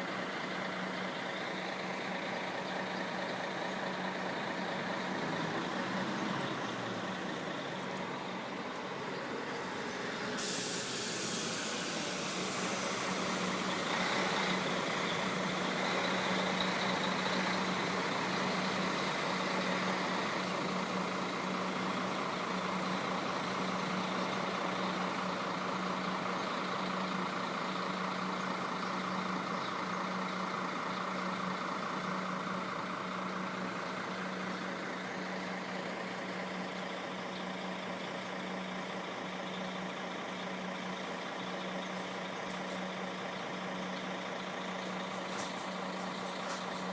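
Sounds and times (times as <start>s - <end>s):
diesel engine idling: 0.0s - 46.9s
air hiss: 10.3s - 13.8s.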